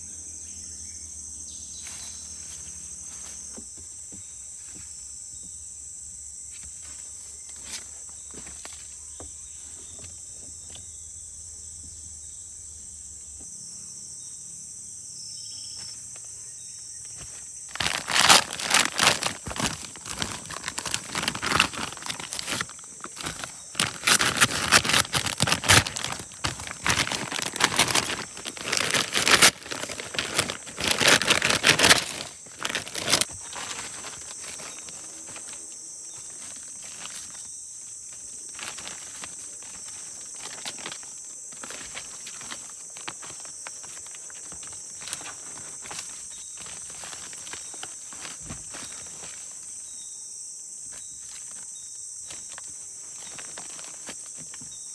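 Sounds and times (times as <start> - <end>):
forest insects chorus: 0.0 - 54.9
rustling and crinkling handling noise: 6.5 - 10.8, 17.0 - 49.9, 50.8 - 54.9.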